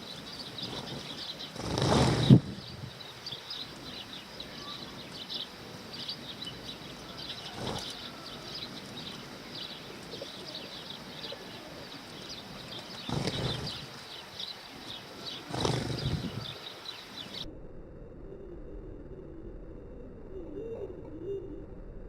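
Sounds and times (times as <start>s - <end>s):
sparrows chirping: 0.0s - 17.4s.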